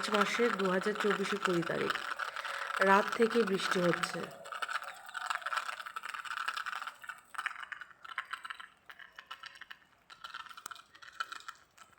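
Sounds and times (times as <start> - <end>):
rain pattering: 0.0 - 11.9.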